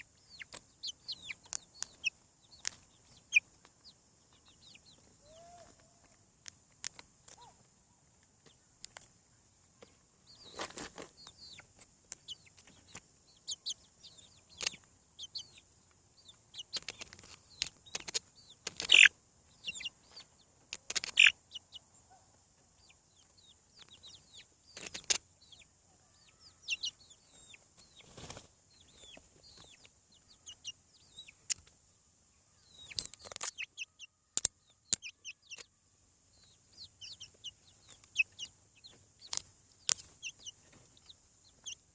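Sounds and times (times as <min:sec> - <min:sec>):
young chickens peeping: 0:00.0 - 0:41.9
sharp taps and rustles: 0:16.7 - 0:19.1, 0:20.1 - 0:21.3.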